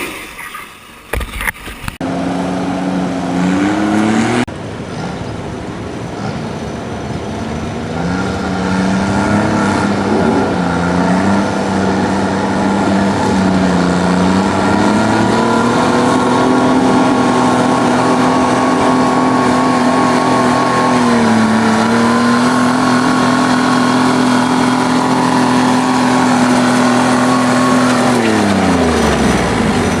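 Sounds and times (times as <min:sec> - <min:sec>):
tractor engine under load: 0:04.5 - 0:30.0.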